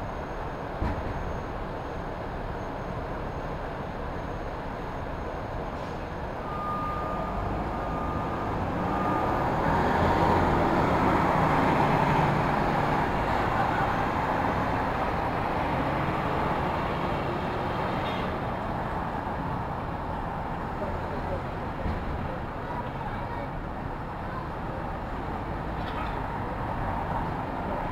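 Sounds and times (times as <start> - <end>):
city street traffic: 0.0 - 27.9
short high beeps: 6.4 - 8.3
large vehicle passing: 7.0 - 19.5.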